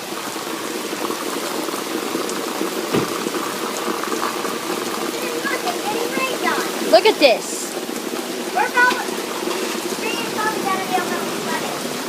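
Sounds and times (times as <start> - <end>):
heavy rain pouring: 0.0 - 12.0
brief thump: 2.9 - 3.2.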